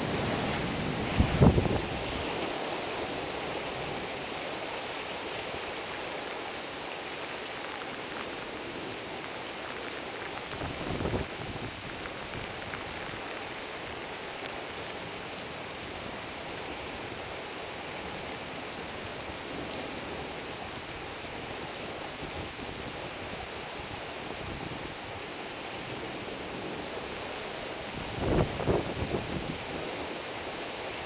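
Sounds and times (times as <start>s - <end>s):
heavy rain falling: 0.0s - 31.0s
raindrops ticking close by: 5.8s - 15.6s.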